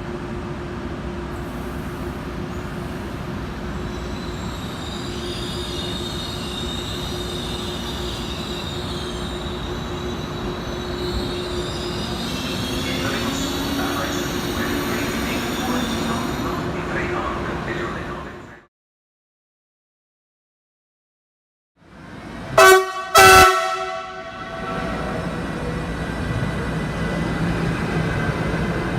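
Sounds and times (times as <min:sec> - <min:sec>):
train rolling with low hum: 0:00.0 - 0:18.6, 0:21.8 - 0:28.9
high-pitched wheel squeal: 0:03.8 - 0:16.6.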